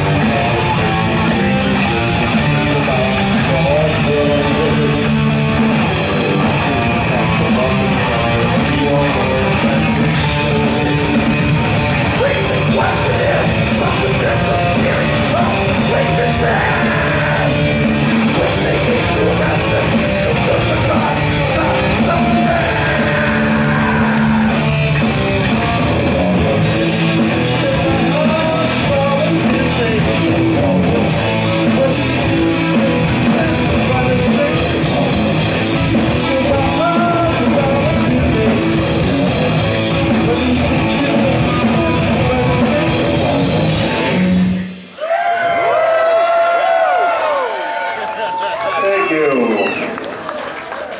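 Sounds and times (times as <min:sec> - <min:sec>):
electric guitar: 0:00.0 - 0:48.8
band playing heavy rock: 0:00.0 - 0:50.9
shouted vocals: 0:14.9 - 0:17.7, 0:18.3 - 0:24.7, 0:45.0 - 0:50.9.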